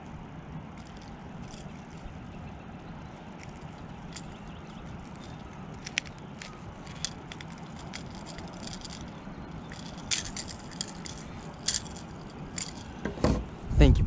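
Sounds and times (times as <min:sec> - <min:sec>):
low background rumble: 0:00.0 - 0:14.0
pliers and fishing lure clicking: 0:03.4 - 0:13.0.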